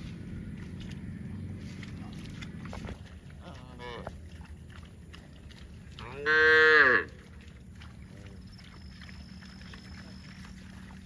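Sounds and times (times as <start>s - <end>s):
cow mooing: 6.0s - 7.1s.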